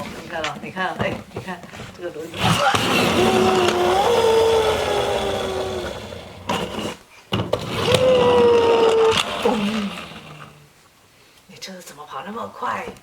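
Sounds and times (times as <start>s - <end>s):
toy car wind-up gear whirring: 2.4s - 7.0s, 7.6s - 10.6s.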